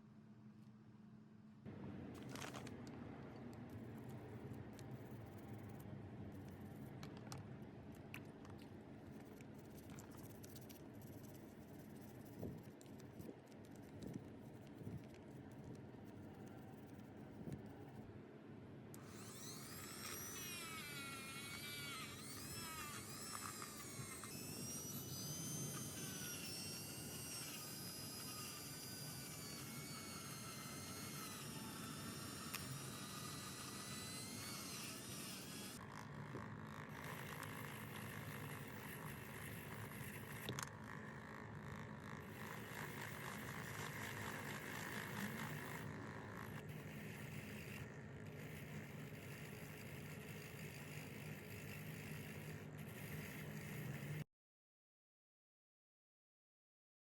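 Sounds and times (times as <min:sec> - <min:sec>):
small electric motor whirring: 0:03.7 - 0:07.1, 0:09.0 - 0:18.0, 0:18.9 - 0:54.3.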